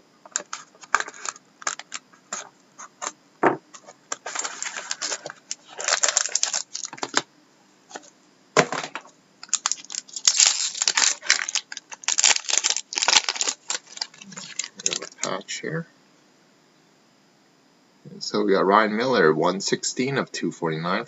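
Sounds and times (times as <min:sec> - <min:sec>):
cards rustling: 0:00.3 - 0:03.1, 0:03.7 - 0:07.2, 0:09.4 - 0:15.3.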